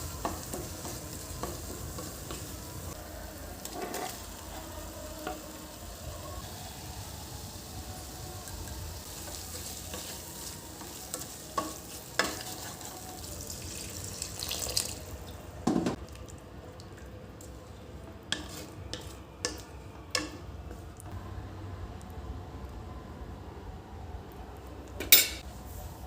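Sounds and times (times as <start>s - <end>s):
food sizzling in a pan: 0.0s - 16.0s, 18.3s - 20.4s
utensils clinking: 25.0s - 25.4s.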